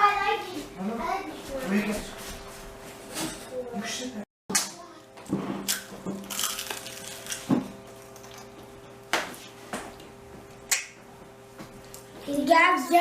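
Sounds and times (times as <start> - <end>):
people eating with hands: 4.6 - 11.0.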